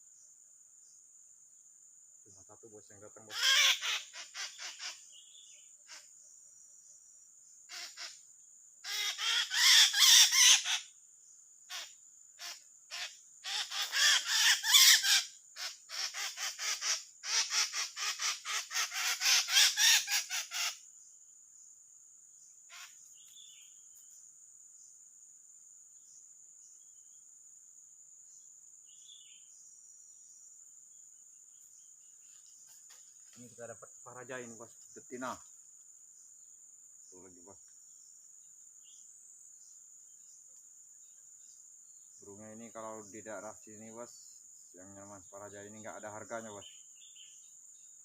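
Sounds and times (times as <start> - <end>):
high-pitched insect drone: 1.9 - 48.0
bird squawking harshly: 3.3 - 5.0, 7.7 - 8.1, 8.9 - 10.8, 11.7 - 20.8.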